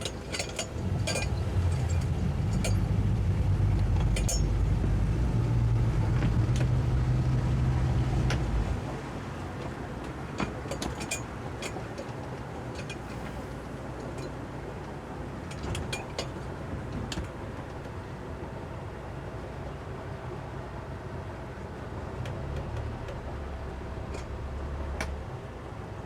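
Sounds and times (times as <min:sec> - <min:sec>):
light metallic clinks: 0:00.0 - 0:02.9, 0:04.1 - 0:04.6
outboard motors running: 0:00.0 - 0:12.0.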